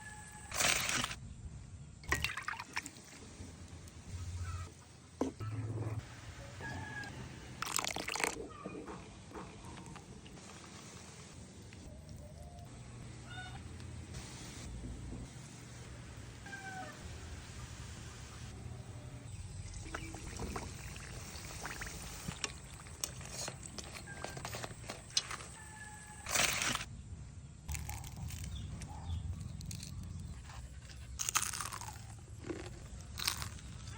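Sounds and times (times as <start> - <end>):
fried wrapper crunching: 27.7 - 28.6, 29.4 - 33.9.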